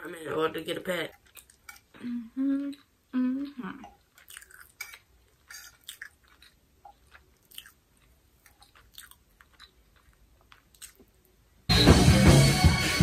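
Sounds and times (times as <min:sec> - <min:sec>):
person chewing: 0:01.1 - 0:11.4.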